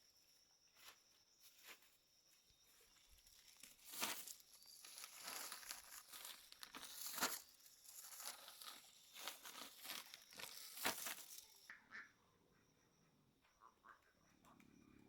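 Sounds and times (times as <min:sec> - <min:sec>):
crinkling handling noise: 0:00.8 - 0:11.7.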